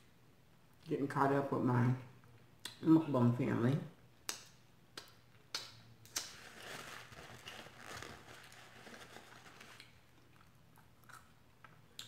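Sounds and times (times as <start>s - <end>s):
chewing food: 9.6s - 12.0s.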